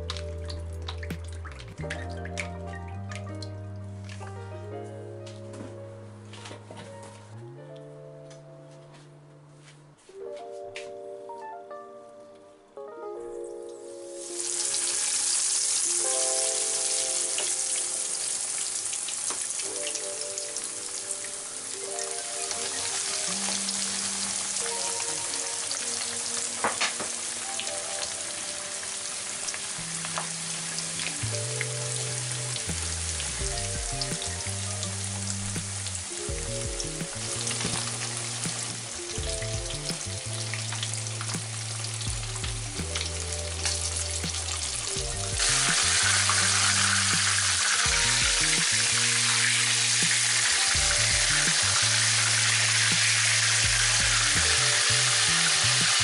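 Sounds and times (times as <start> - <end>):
background music: 0.0 - 56.0
chicken frying in hot oil: 14.2 - 56.0.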